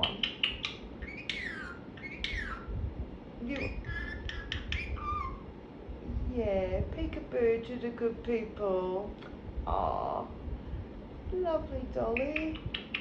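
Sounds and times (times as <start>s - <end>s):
parrot clicks: 0.0s - 1.4s, 12.2s - 13.0s
parrot chattering: 0.0s - 2.7s, 3.4s - 5.5s, 12.2s - 13.0s
parrot whistle-like calls: 0.0s - 2.7s, 3.6s - 5.5s
fan humming: 0.0s - 13.0s.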